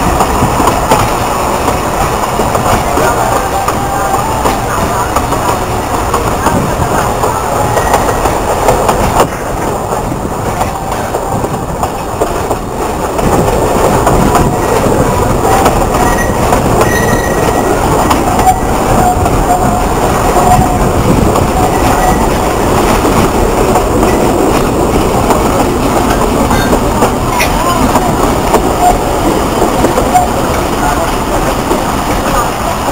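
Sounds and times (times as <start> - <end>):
train rumble and wheel clatter: 0.0 - 32.9
faint high wheel squeal: 16.0 - 19.6.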